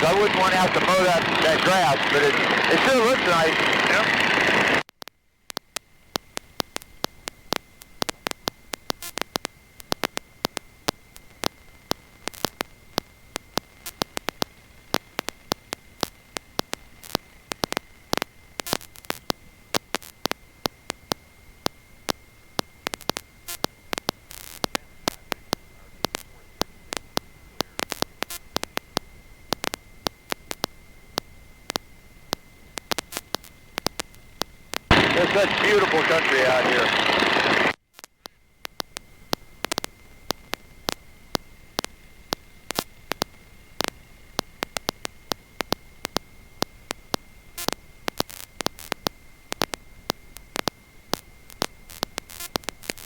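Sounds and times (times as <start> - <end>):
faint static hiss: 0.0 - 53.0
static crackles and pops: 0.0 - 53.0
steady high whine: 0.0 - 53.0.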